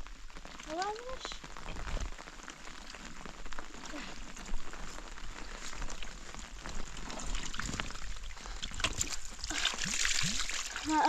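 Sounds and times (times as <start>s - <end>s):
water pattering and trickling: 0.0s - 11.0s.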